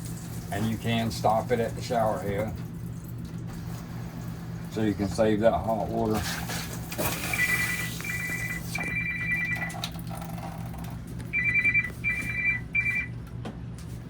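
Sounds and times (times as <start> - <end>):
steady low hum: 0.0 - 14.0
electronic trilling ring: 7.1 - 9.8, 11.3 - 13.1.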